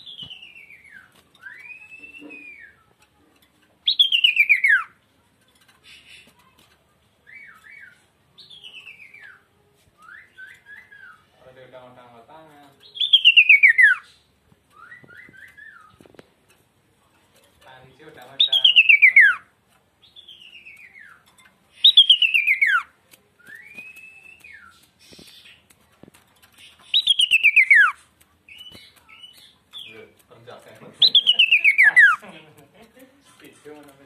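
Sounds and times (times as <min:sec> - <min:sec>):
songbird singing fast whistles: 0:03.9 - 0:04.9, 0:13.0 - 0:14.1, 0:18.4 - 0:19.4, 0:21.8 - 0:25.6, 0:26.9 - 0:29.9.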